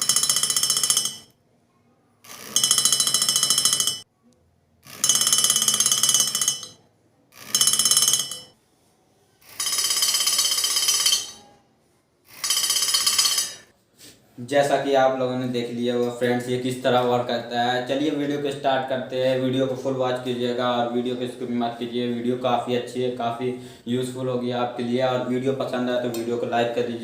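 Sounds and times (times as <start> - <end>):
high-pitched alarm ringing: 0.0 - 1.3, 2.3 - 4.0, 4.9 - 6.8, 7.4 - 8.6, 9.4 - 11.5, 12.3 - 13.7.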